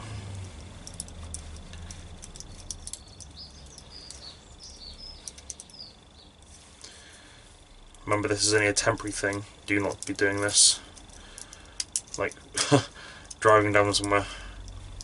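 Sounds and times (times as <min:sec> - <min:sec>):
small birds chirping: 0:00.0 - 0:15.0
steady low hum: 0:00.0 - 0:15.0
light clicks: 0:00.4 - 0:06.0, 0:08.8 - 0:12.5, 0:13.2 - 0:15.0.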